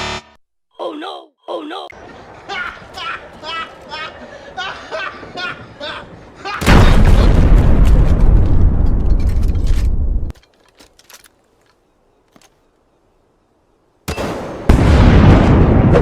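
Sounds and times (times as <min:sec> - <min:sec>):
deep rumbling with crackles: 0:06.6 - 0:10.4.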